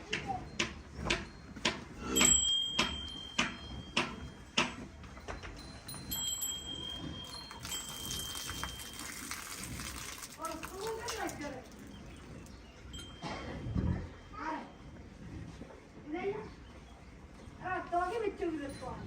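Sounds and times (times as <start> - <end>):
milk squirting into a pail: 7.2 - 12.6.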